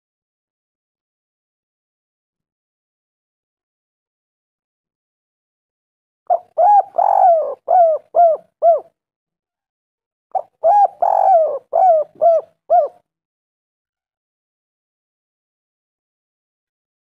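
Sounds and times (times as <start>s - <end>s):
dove cooing: 6.3s - 8.9s, 10.3s - 13.0s.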